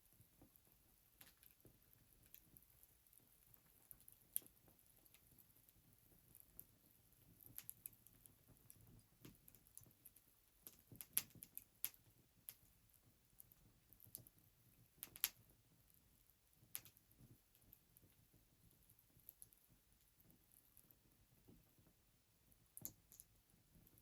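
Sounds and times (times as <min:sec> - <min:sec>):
fire crackling and popping: 0:00.2 - 0:21.9, 0:22.5 - 0:24.0.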